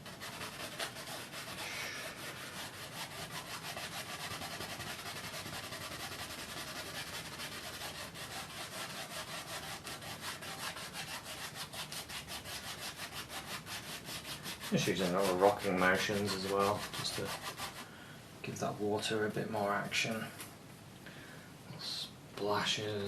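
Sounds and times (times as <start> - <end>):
paintbrush strokes on canvas: 0.0 - 17.8.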